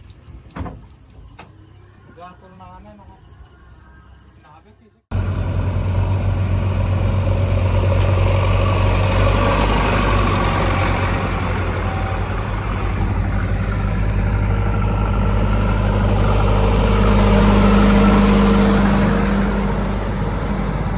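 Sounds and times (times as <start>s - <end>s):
diesel engine running: 5.1s - 20.9s.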